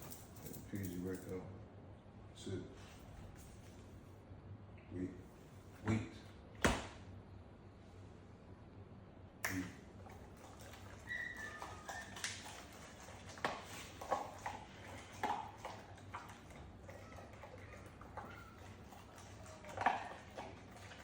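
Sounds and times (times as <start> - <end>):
dog eating and licking: 9.7 - 21.0.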